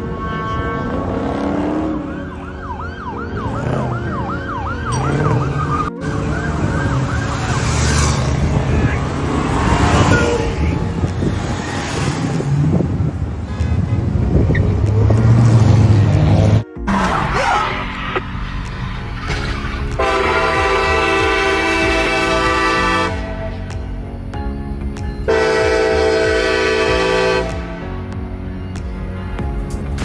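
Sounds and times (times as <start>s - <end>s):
siren yelping: 0.0s - 10.5s
road and traffic noise: 0.0s - 30.0s.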